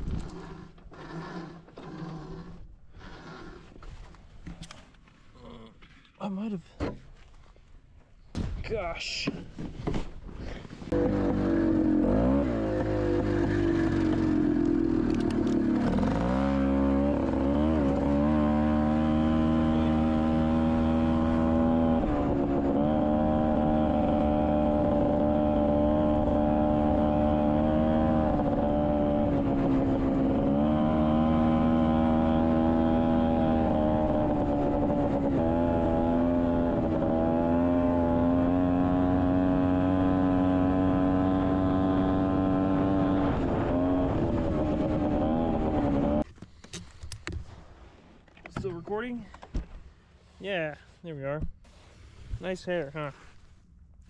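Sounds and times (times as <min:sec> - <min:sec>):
two-stroke engine running under load: 0:10.9 - 0:46.2.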